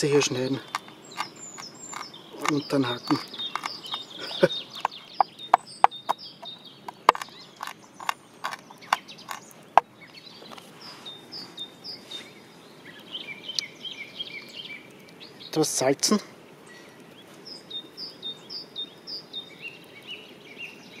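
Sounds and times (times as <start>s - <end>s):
small birds chirping: 0.0s - 21.0s
knife chopping peppercorns: 0.7s - 4.1s, 6.9s - 9.4s.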